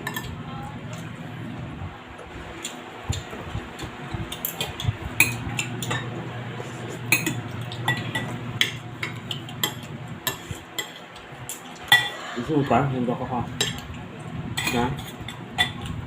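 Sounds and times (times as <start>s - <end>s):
cutlery clinking on plates: 7.1s - 12.3s, 14.6s - 15.9s.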